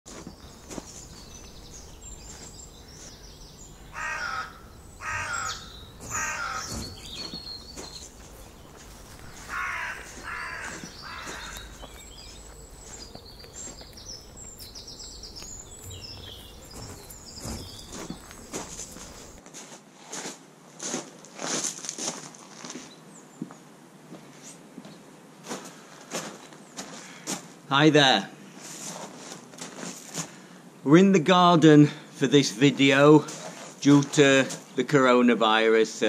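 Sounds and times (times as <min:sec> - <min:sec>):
small birds chirping: 0:00.1 - 0:19.4
large bird cawing: 0:01.6 - 0:19.4.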